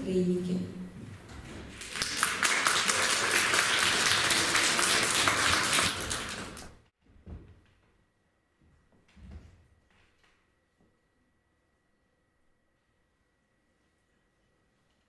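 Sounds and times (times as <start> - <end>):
audience applauding: 1.7 - 6.8.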